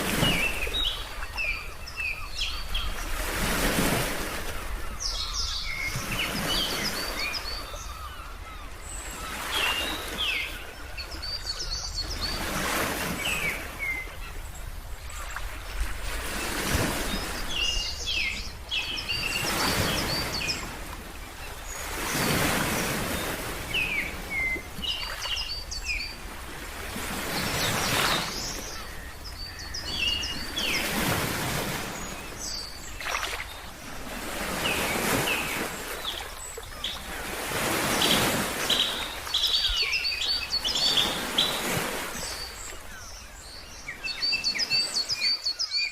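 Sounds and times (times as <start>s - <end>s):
ocean waves washing in: 0.0s - 1.7s
small birds chirping: 4.6s - 26.2s, 27.2s - 33.9s, 34.5s - 45.9s.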